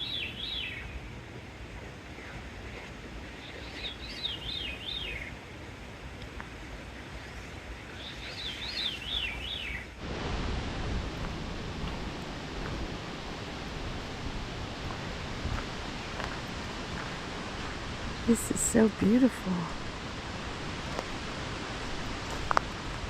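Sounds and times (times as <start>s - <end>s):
songbird singing: 0.0s - 10.0s, 15.8s - 19.9s
steady rushing noise: 0.0s - 23.0s.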